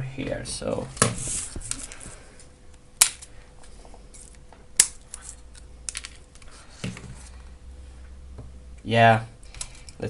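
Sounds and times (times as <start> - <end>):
sharp cracks: 3.0 - 3.4, 4.7 - 6.1.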